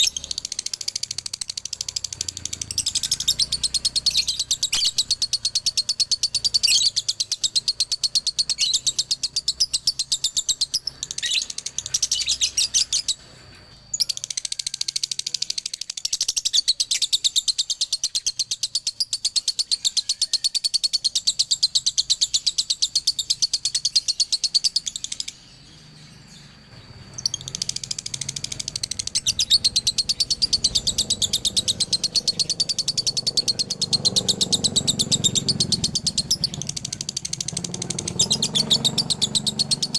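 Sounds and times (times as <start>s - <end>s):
lovebird high rapid chattering song: 0.0s - 39.9s.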